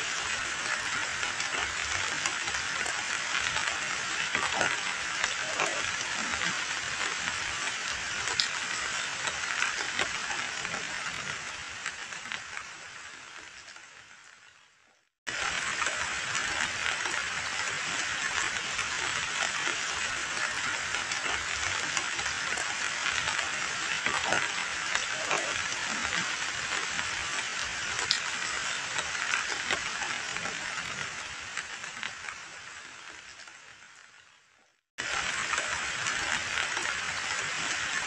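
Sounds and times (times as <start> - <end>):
heavy rain on water: 0.0 - 14.4, 15.3 - 34.2, 35.0 - 38.0.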